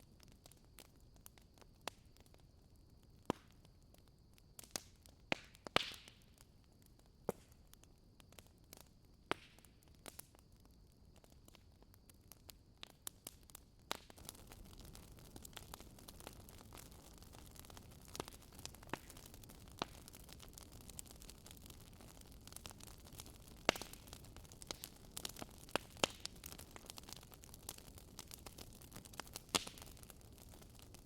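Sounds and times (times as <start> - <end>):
fire crackling and popping: 0.0 - 31.0.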